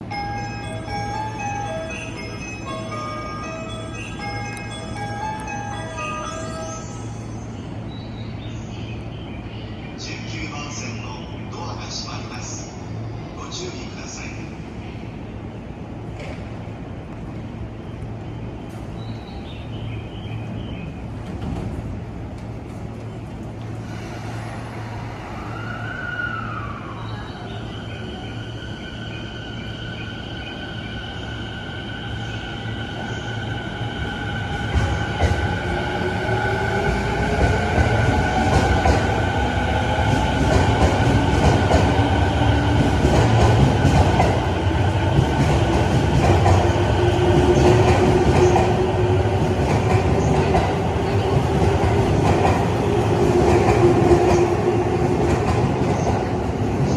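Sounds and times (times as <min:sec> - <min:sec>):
train running noise: 0:00.0 - 0:56.9.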